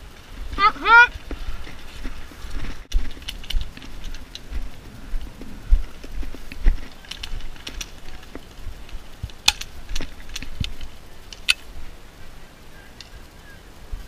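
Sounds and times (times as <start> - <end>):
low rumble: 0.0 - 12.8
sharp clicks and light knocks: 1.3 - 4.7, 5.4 - 11.7.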